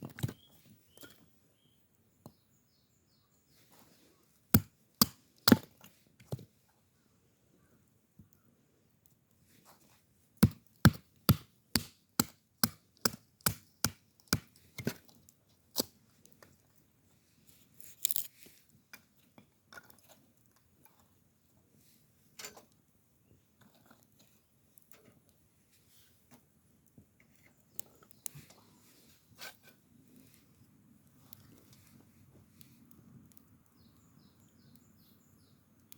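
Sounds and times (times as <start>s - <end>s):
blade chopping wood: 4.6s - 6.4s, 10.4s - 15.0s.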